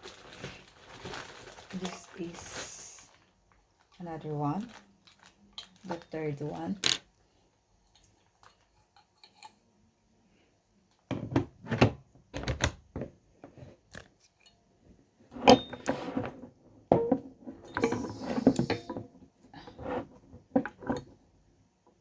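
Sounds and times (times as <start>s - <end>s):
plastic or paper rustling: 0.0s - 6.8s.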